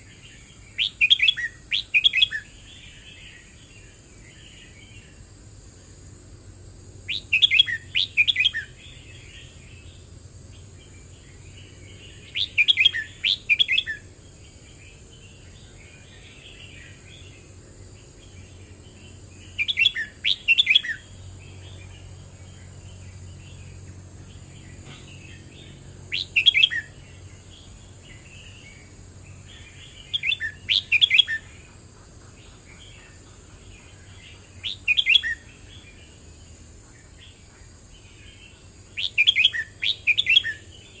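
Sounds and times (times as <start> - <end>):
bird song phrases: 0.0 - 41.0
bird chattering: 26.1 - 27.0, 29.6 - 35.5.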